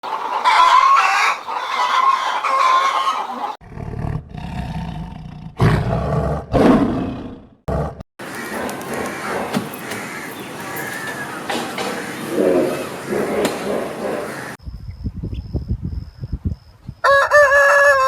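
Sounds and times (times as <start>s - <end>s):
rooster crowing: 0.4s - 3.6s, 17.0s - 18.0s
deep rough animal calls: 3.6s - 14.6s.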